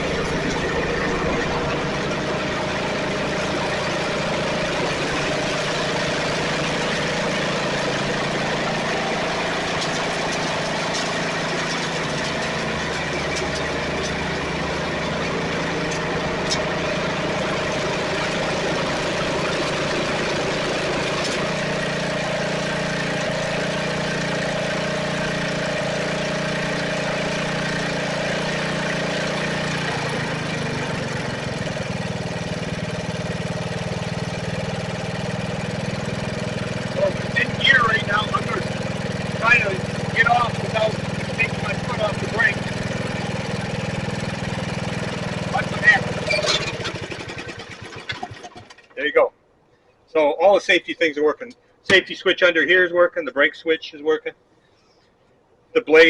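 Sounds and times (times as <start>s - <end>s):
riding mower engine running: 0.0s - 49.3s, 50.1s - 55.1s, 55.8s - 56.0s.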